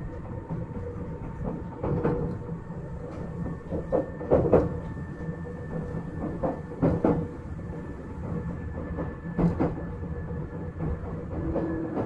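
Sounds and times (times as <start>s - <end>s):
train rumble: 0.0s - 12.0s
train wheels clacking over rail joints: 0.1s - 12.0s.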